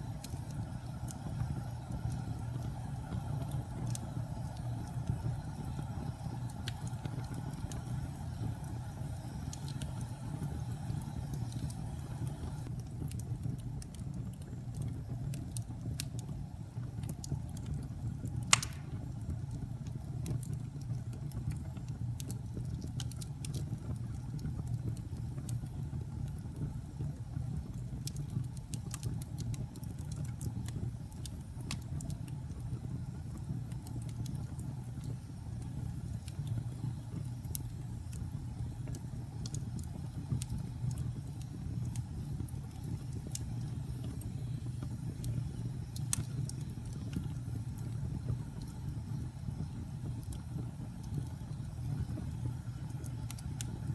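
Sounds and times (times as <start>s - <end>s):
fire crackling: 0.0s - 53.9s
fire flames rumbling: 0.0s - 53.9s
loud pop from fire: 18.5s - 19.1s.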